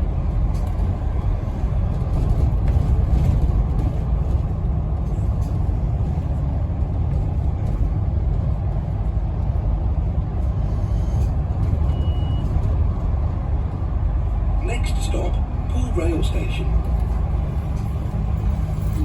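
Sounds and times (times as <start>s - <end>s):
bus diesel engine rumbling: 0.0s - 19.0s
road noise: 0.0s - 19.0s
short faint beep: 11.9s - 12.5s.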